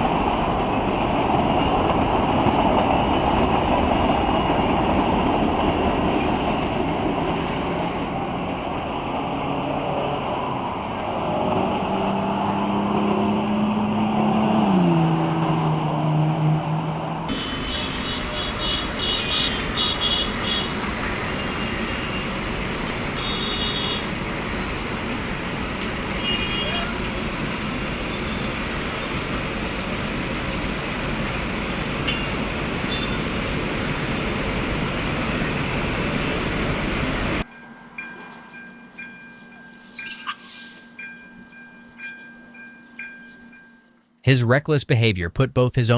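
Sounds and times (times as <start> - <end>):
train rail noise: 0.0 - 12.0, 17.3 - 43.6
rumbling road noise: 17.3 - 37.4.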